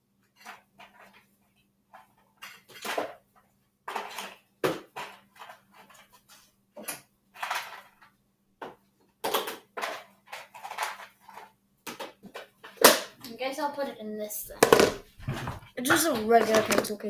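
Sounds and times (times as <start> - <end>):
small hard objects clattering: 14.5 - 15.6, 16.2 - 17.0.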